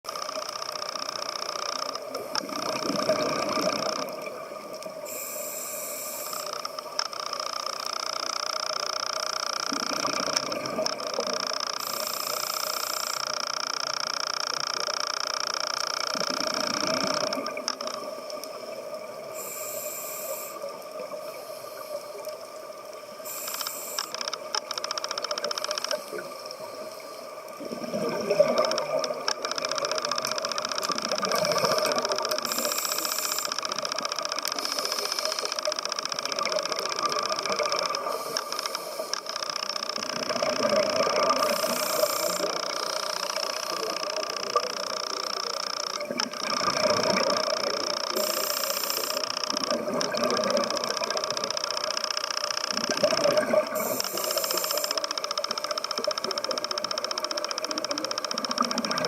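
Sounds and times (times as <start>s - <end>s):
steady hum: 0.1s - 59.0s
regulator inhalation hiss: 5.0s - 6.8s, 11.8s - 13.5s, 19.3s - 22.3s, 23.2s - 24.3s, 31.1s - 33.8s, 34.4s - 35.8s, 37.9s - 40.0s, 40.7s - 46.1s, 47.5s - 49.5s, 53.6s - 55.6s.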